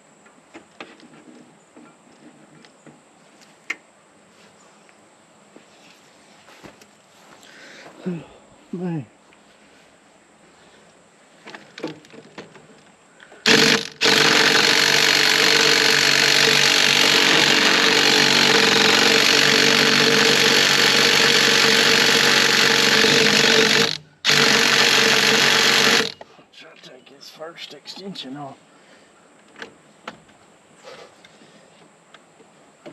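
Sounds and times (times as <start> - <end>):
impact wrench hammering: 13.4 - 26.2.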